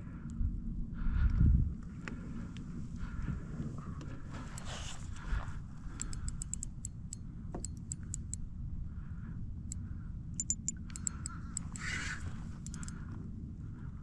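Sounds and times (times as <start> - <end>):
wind: 0.0 - 14.0
sharp light ticks: 4.5 - 8.5, 10.4 - 13.0.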